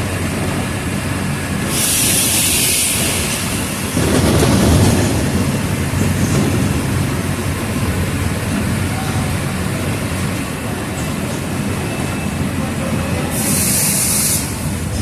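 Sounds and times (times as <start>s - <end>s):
bus diesel engine droning: 0.0s - 15.0s
road noise: 0.0s - 15.0s.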